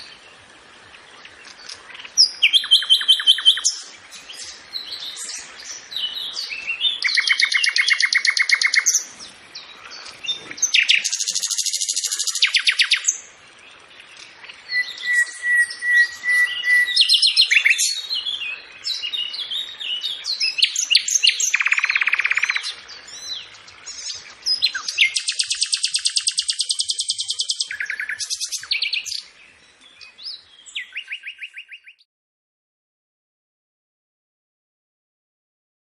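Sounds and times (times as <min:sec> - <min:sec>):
songbird trills: 0:00.0 - 0:32.1
bird chirps and whistles: 0:02.2 - 0:03.8, 0:14.7 - 0:18.0, 0:20.4 - 0:22.7, 0:24.0 - 0:29.2, 0:30.7 - 0:32.1.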